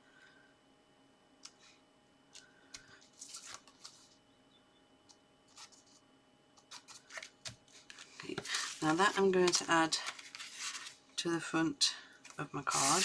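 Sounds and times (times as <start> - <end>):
card stock rustling and tapping: 6.7 - 10.9.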